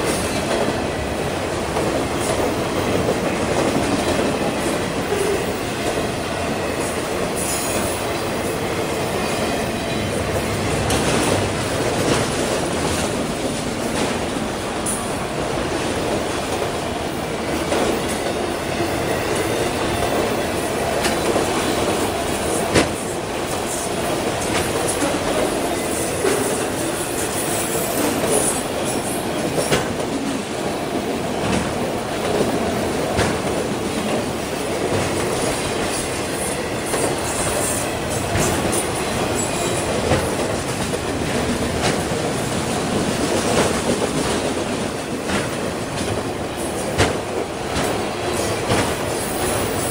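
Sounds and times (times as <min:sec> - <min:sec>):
train wheels rumbling on rail: 0:00.0 - 0:49.9
clacks over rail joints: 0:09.8 - 0:16.8, 0:19.3 - 0:26.8, 0:27.9 - 0:30.4, 0:31.0 - 0:49.9.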